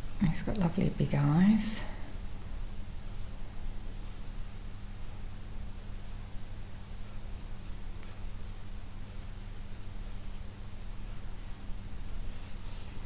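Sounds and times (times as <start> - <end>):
steady low hum: 0.0 - 13.0
pencil scratching on paper: 6.6 - 11.6.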